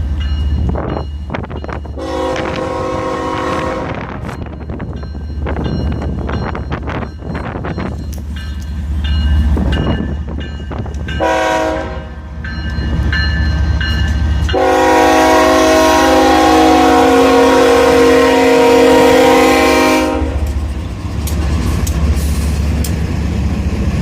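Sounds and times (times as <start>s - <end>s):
passing train rumbling and clicking: 0.0s - 24.0s
train horn blasts: 2.0s - 4.4s, 11.2s - 12.2s, 14.5s - 20.6s.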